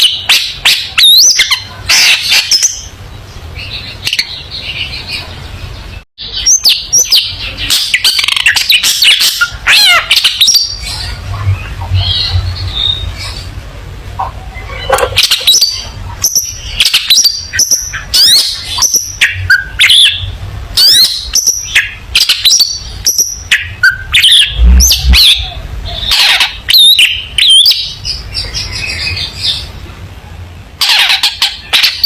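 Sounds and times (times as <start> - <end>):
bird singing chirps and whistles: 0.0 - 2.9, 6.2 - 13.5, 14.6 - 29.7.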